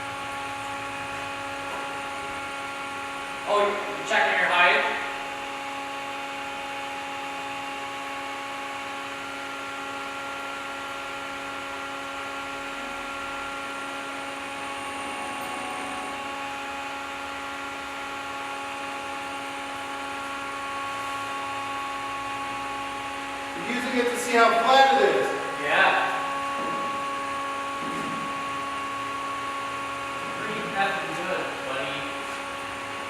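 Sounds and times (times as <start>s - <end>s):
bandsaw mill humming: 0.0s - 33.0s.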